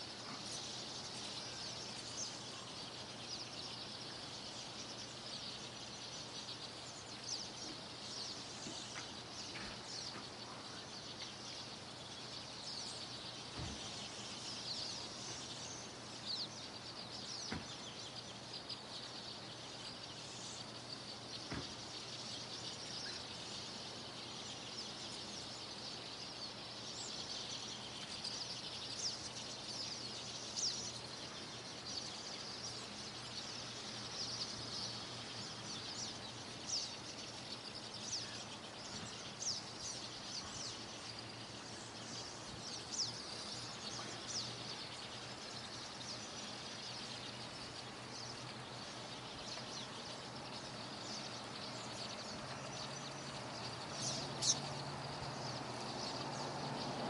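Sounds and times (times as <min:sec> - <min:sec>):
faint steady hiss: 0:00.0 - 0:57.0
songbirds chirping and trilling: 0:00.0 - 0:57.0.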